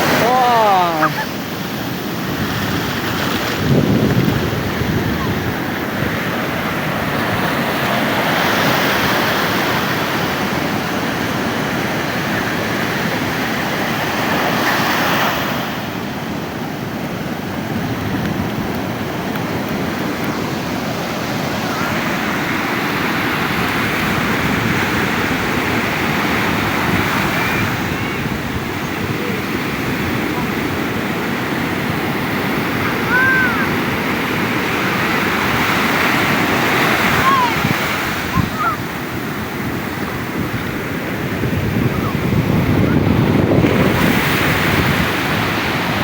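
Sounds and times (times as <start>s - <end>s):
ocean surf breaking: 0.0s - 46.0s.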